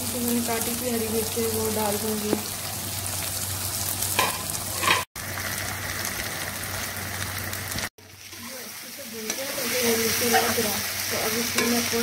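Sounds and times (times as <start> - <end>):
curry sizzling in oil: 0.0 - 12.0.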